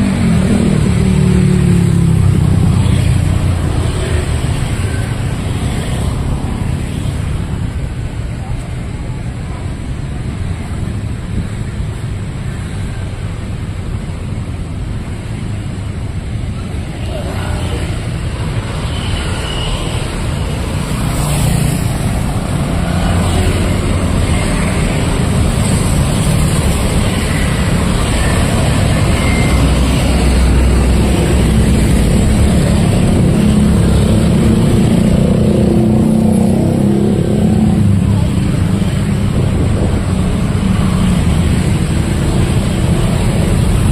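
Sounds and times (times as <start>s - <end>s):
passing motor vehicles: 0.0s - 43.9s
faint voices: 16.2s - 18.8s.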